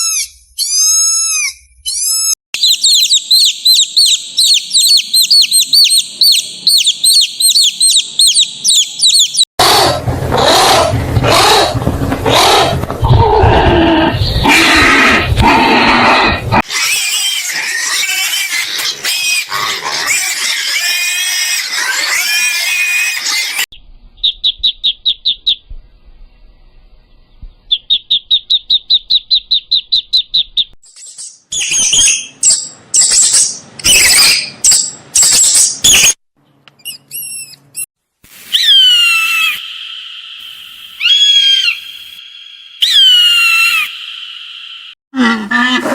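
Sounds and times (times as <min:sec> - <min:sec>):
wavering animal cries: 0:00.0 - 0:23.2, 0:38.5 - 0:39.9, 0:41.0 - 0:42.0, 0:42.8 - 0:44.4, 0:45.2 - 0:45.9
loud high animal cries: 0:06.2 - 0:23.2, 0:38.5 - 0:40.0, 0:41.0 - 0:42.0, 0:42.8 - 0:44.4, 0:45.2 - 0:45.9.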